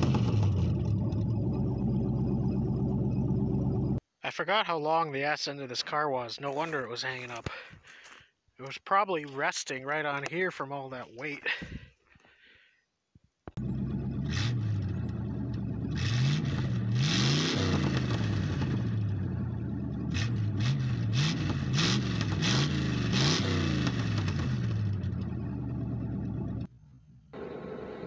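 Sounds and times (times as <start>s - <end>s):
car engine revving: 0.0s - 4.0s, 13.6s - 26.7s.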